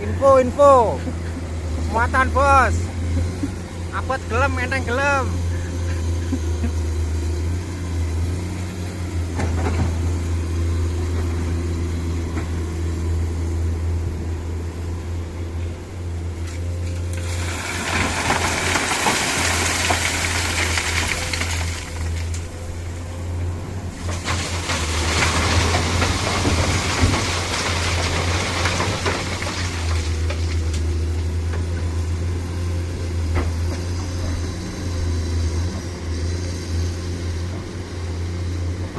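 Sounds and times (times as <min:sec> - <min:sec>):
diesel truck engine droning: 0:00.0 - 0:38.9.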